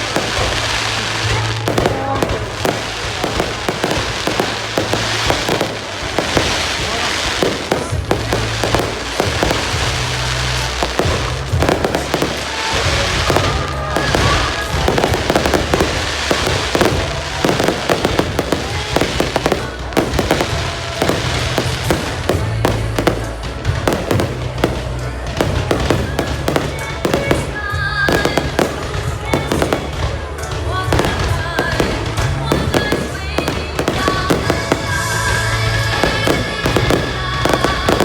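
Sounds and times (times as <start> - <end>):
fireworks bangs and crackles: 0.0 - 38.0
music with steady bass: 0.0 - 38.0.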